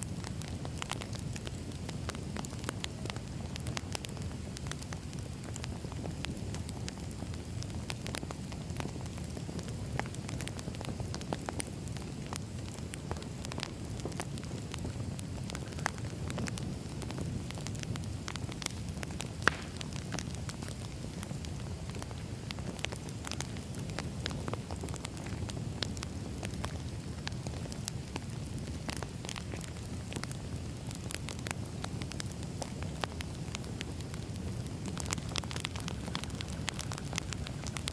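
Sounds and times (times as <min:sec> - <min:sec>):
campfire crackling and popping: 0:00.0 - 0:37.9.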